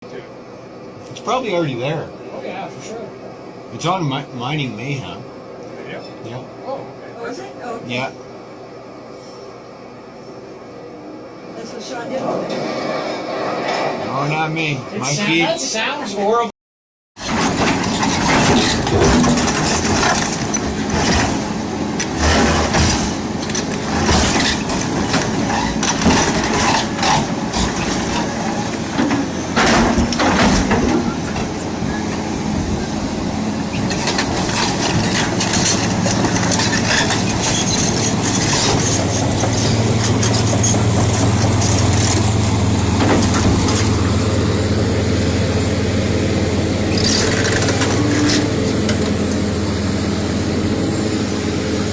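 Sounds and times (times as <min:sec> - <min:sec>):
heavy machinery engine drone: 0:00.0 - 0:16.4, 0:17.2 - 0:51.9
machinery clanks and knocks: 0:17.2 - 0:32.7, 0:33.7 - 0:44.5, 0:46.8 - 0:49.4.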